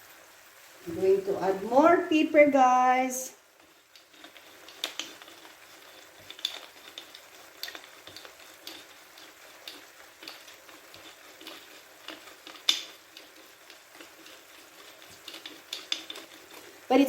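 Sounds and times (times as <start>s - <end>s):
food sizzling in frying pan: 0.0s - 17.0s
utensil clicking while stirring: 3.4s - 17.0s.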